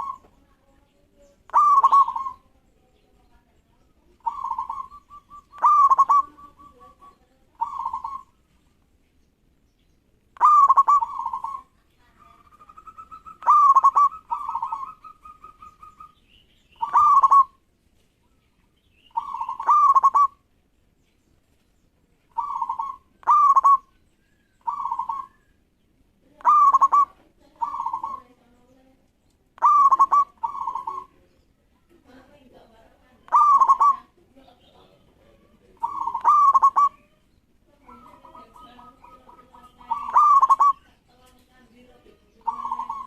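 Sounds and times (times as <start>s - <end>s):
dove cooing: 0.0s - 0.5s, 1.4s - 2.8s, 3.8s - 8.5s, 10.4s - 17.6s, 19.0s - 20.5s, 22.3s - 24.0s, 24.6s - 25.6s, 26.3s - 28.6s, 29.6s - 31.3s, 33.2s - 41.4s, 42.0s - 43.0s.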